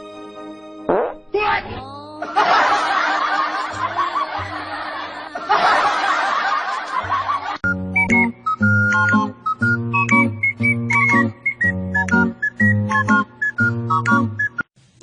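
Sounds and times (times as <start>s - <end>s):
crowd laughing: 2.2s - 7.6s
plinky tune: 8.0s - 11.3s.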